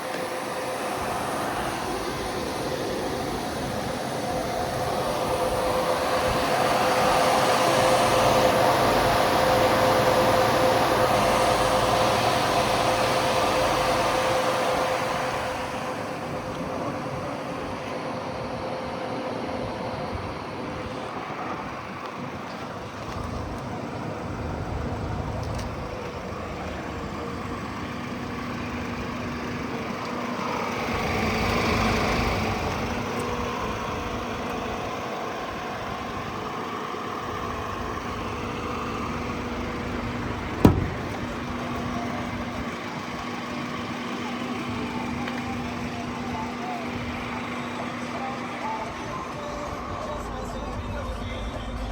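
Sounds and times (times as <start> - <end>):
vehicle engine idling: 0.0 - 51.9
sharp knock: 40.6 - 41.3.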